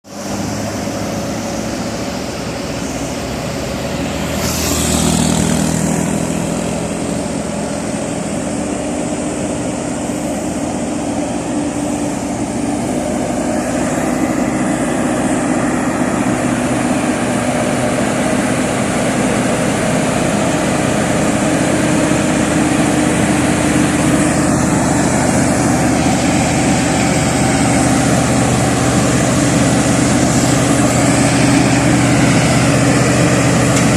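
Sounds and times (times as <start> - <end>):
truck engine running: 0.0 - 33.9
brief hiss: 4.2 - 5.5.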